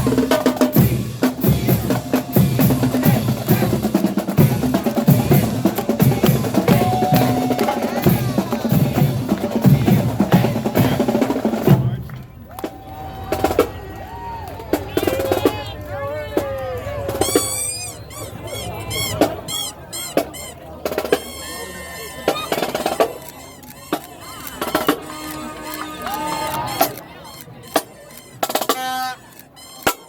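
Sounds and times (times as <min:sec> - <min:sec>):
bass drums: 0:00.0 - 0:13.9
snare drums: 0:00.0 - 0:13.9, 0:14.5 - 0:15.8, 0:16.4 - 0:30.0.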